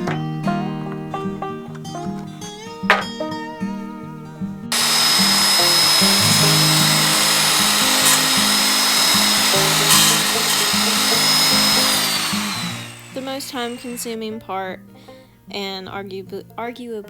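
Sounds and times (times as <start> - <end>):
acoustic guitar music: 0.0 - 17.0
power tool whining: 4.7 - 14.2.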